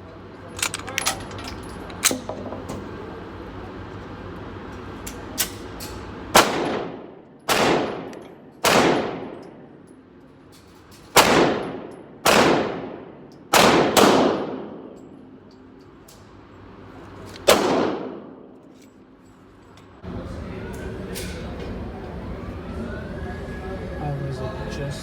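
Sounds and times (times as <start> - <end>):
pistol shots echoing indoors: 6.3 - 9.7, 11.1 - 15.4, 17.4 - 18.6.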